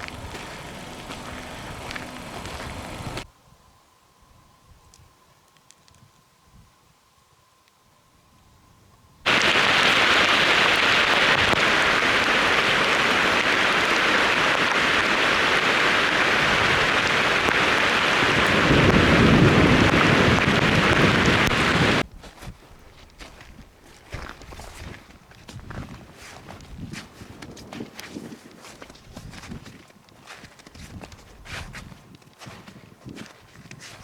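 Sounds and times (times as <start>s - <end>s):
water rushing: 0.0s - 3.2s, 9.3s - 22.0s
deep rumble: 0.0s - 3.3s.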